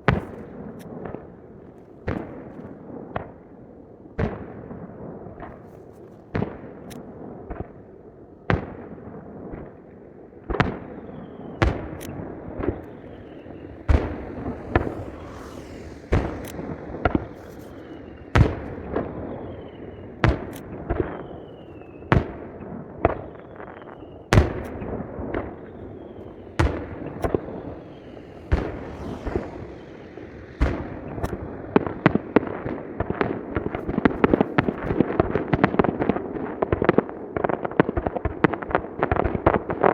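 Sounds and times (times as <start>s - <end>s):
fireworks crackle: 11.0s - 37.0s
firework shell bursts: 11.8s - 21.9s
falling whistles: 12.6s - 20.3s, 21.0s - 22.1s, 25.5s - 32.4s.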